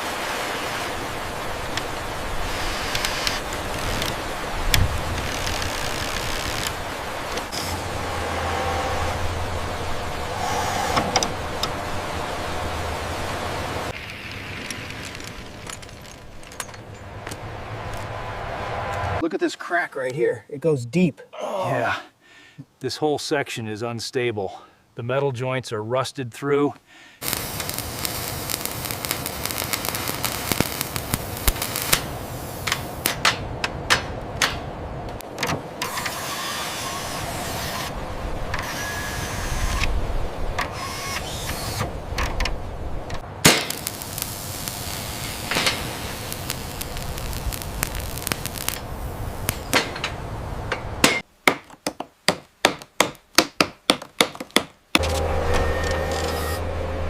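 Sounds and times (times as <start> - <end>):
hand tools scraping and clinking: 49.6 - 50.9, 55.0 - 56.6
sharp hammer strikes: 50.7 - 51.7.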